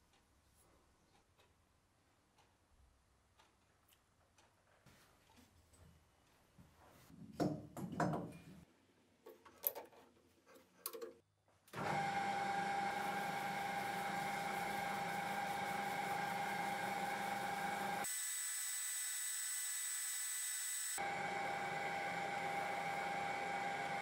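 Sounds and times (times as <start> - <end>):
metal lathe humming: 11.8 - 18.2, 20.3 - 24.0.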